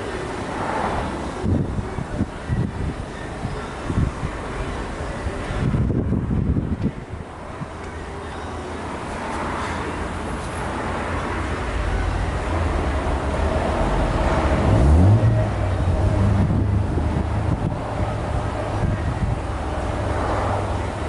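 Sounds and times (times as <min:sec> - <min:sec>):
vehicle engine running: 0:11.2 - 0:21.0.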